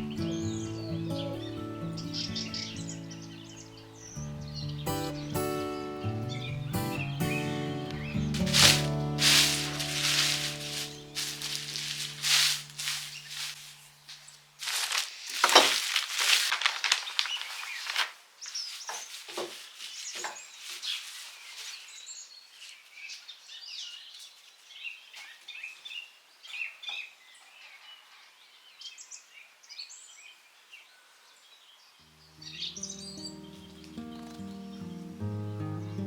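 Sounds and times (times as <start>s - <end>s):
small birds chirping: 0.0s - 36.0s
rustling and scraping handling noises: 8.4s - 25.4s.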